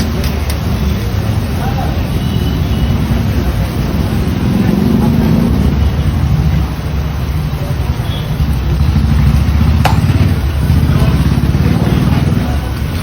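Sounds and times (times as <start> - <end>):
low rumble of busy food stall: 0.0 - 13.0
sharp clink: 9.8 - 10.4.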